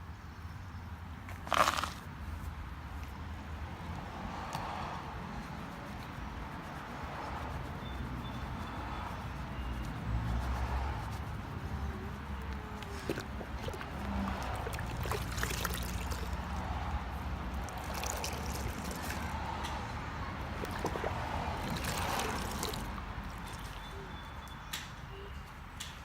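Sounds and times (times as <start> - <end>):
water sloshing and trickling: 1.3 - 24.9
small knocks and splashes: 12.4 - 23.9.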